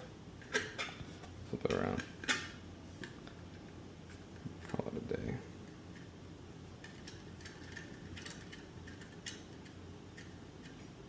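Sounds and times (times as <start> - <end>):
low room hum: 0.0 - 11.0
small parts clicking and tapping: 6.8 - 10.8.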